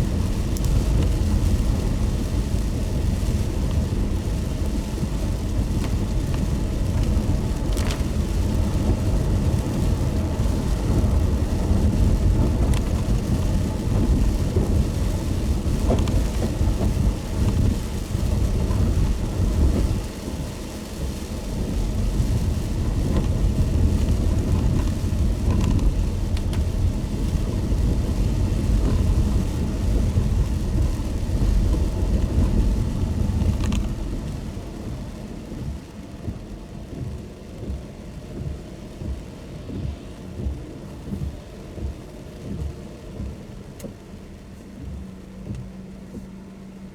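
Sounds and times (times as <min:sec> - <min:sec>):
car road and engine rumble: 0:00.0 - 0:46.9
rain hissing: 0:00.0 - 0:46.9
raindrops ticking: 0:00.0 - 0:46.9.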